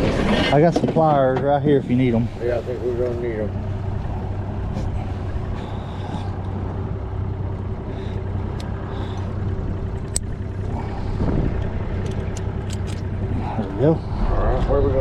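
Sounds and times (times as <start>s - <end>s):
boat motor idling: 0.0s - 15.0s
wind noise: 11.1s - 11.7s.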